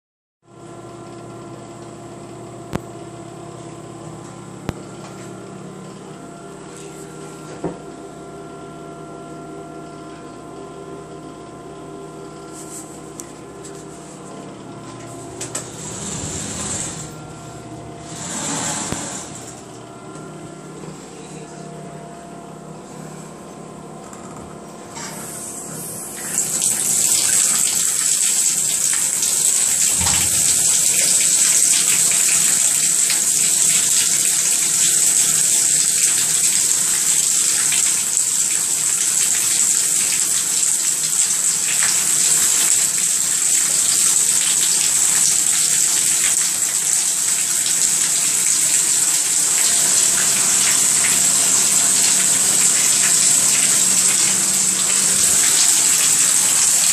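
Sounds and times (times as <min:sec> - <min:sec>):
water running from a tap: 0:26.1 - 0:56.9.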